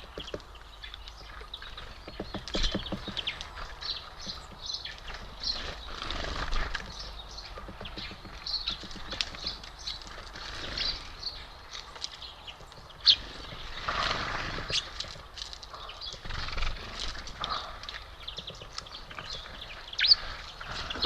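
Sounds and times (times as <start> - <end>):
small birds chirping: 0.0 - 21.0
small taps and clicks: 6.7 - 9.9.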